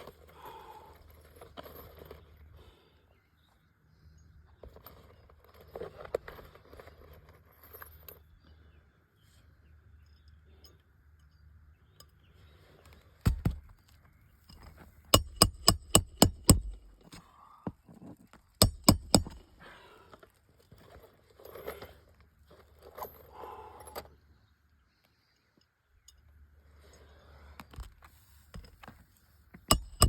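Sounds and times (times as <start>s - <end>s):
hammer striking roofing nails: 15.1s - 16.9s, 18.6s - 19.4s, 29.7s - 30.0s.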